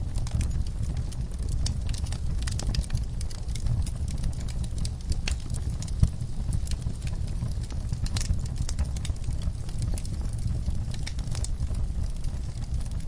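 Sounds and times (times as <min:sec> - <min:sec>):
low steady rumble: 0:00.0 - 0:13.0
wood fire crackling: 0:00.0 - 0:13.0.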